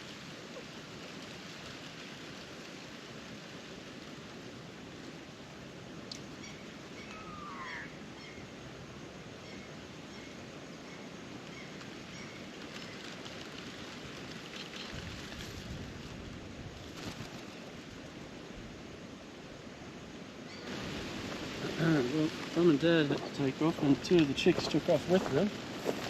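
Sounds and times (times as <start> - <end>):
outdoor background noise: 0.0 - 26.0
faint bird chirps: 6.3 - 8.5, 20.5 - 20.7
bird call falling in pitch: 7.0 - 8.3.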